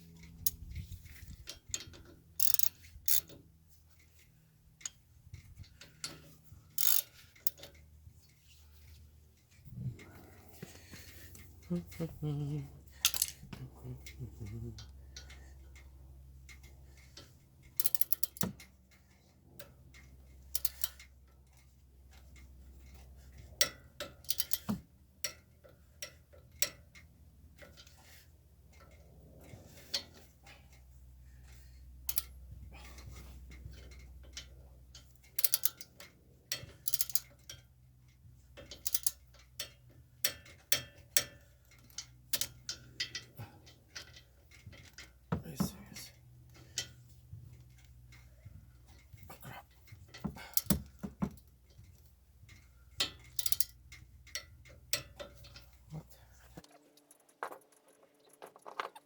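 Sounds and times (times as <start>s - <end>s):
low steady hum: 0.0s - 57.8s
hand tools clinking against metal: 4.8s - 18.7s, 38.5s - 56.7s.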